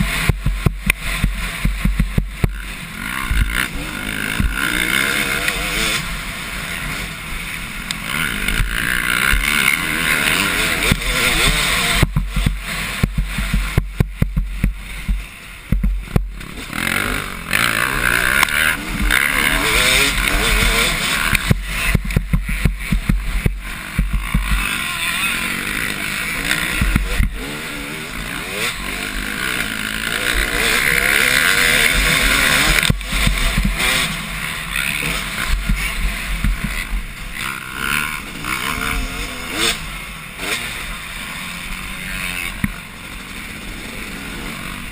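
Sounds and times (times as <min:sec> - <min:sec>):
motocross bikes revving: 0:00.0 - 0:44.9.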